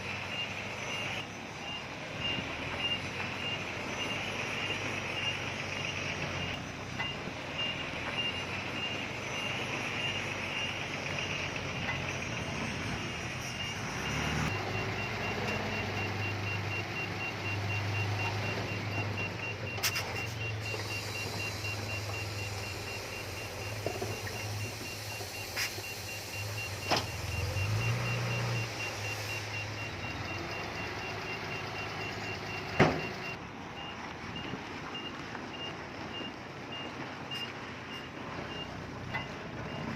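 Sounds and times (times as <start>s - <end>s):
heavy diesel machinery working: 0.0s - 39.9s
backup alarm beeping: 13.4s - 39.9s.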